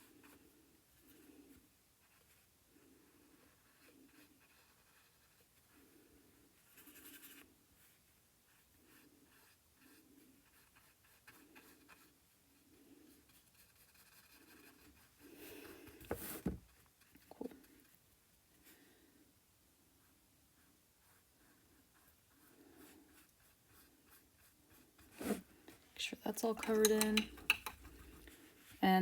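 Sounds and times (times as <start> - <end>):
paintbrush strokes on canvas: 0.0 - 18.0, 20.0 - 27.0
brush scrape: 22.4 - 25.8, 26.4 - 28.8.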